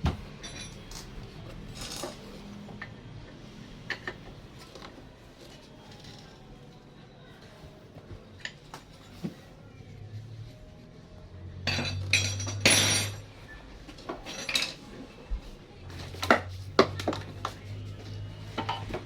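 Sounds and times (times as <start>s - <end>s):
metal tools clinking and rattling: 0.3s - 2.4s, 11.6s - 13.4s, 14.0s - 14.9s.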